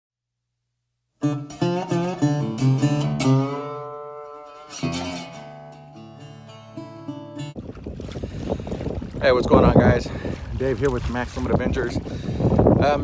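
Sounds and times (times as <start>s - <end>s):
acoustic guitar music: 1.2s - 8.4s.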